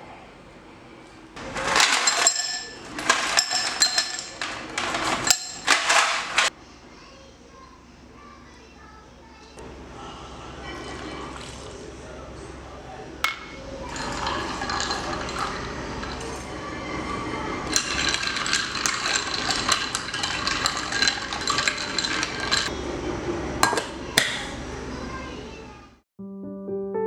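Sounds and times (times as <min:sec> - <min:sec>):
utensils clinking against dishes: 0:01.4 - 0:06.6, 0:13.2 - 0:22.8, 0:23.6 - 0:25.3.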